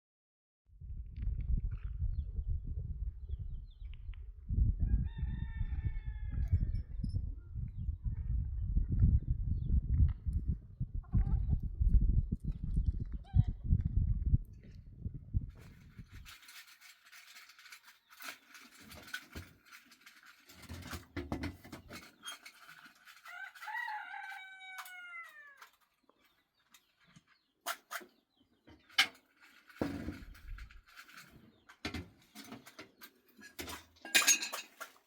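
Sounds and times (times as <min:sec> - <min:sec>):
rooster crowing: 0:04.9 - 0:06.7, 0:23.2 - 0:25.7.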